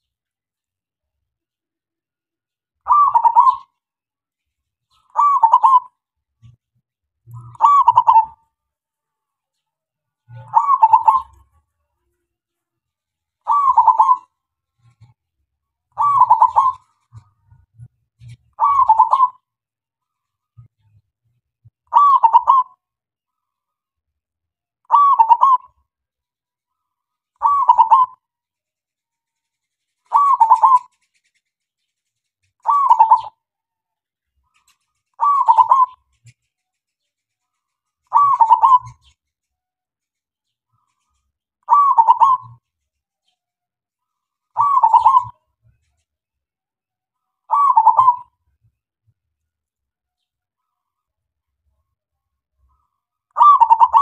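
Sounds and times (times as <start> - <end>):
dove cooing: 2.9 - 3.7, 5.1 - 6.5, 7.4 - 8.4, 10.3 - 11.5, 13.5 - 15.0, 16.0 - 17.4, 18.3 - 19.4, 21.9 - 22.8, 24.9 - 25.8, 27.4 - 28.2, 30.1 - 31.0, 32.6 - 33.4, 35.2 - 36.3, 38.1 - 39.2, 41.7 - 42.6, 44.6 - 45.4, 47.5 - 48.3, 53.4 - 54.0.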